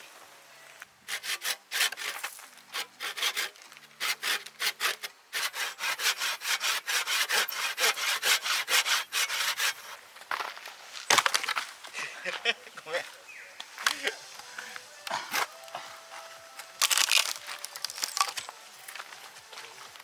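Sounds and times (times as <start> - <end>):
hand saw cutting wood: 1.1 - 10.0.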